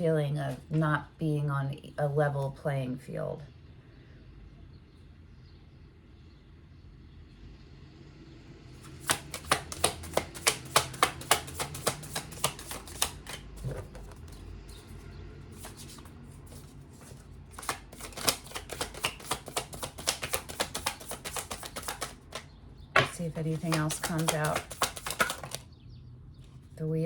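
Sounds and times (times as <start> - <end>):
cards being shuffled by hand: 8.8 - 22.4, 23.0 - 25.6.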